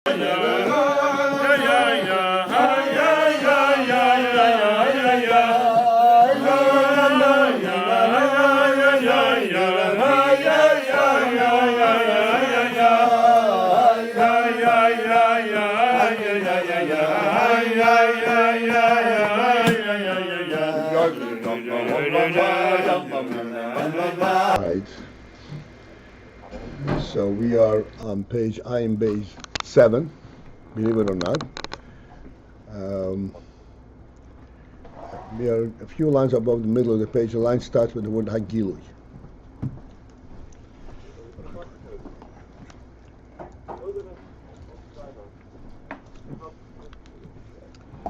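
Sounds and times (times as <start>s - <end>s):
person singing chant-like melody: 0.0s - 24.6s.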